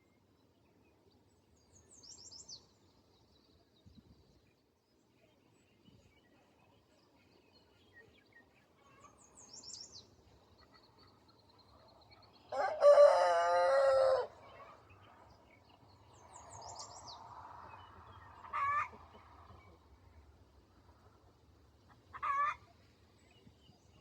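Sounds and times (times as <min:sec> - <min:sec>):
rooster crowing: 0:12.5 - 0:14.4.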